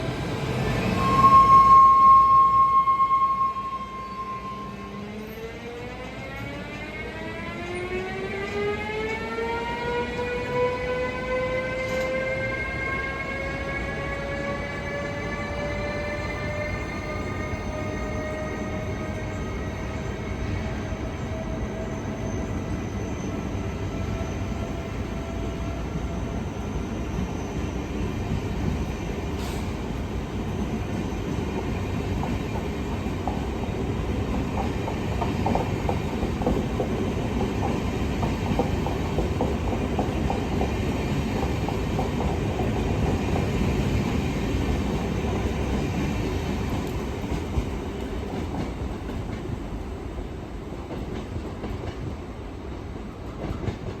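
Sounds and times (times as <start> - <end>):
train wheels clattering over rail joints: 34.3 - 43.8.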